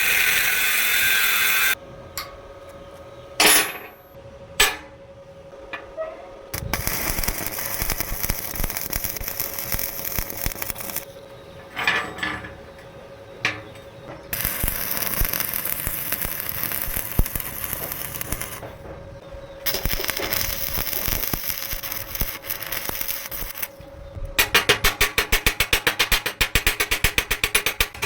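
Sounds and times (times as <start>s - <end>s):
arc welding crackling: 0.0s - 1.8s, 6.5s - 11.2s, 13.7s - 28.0s.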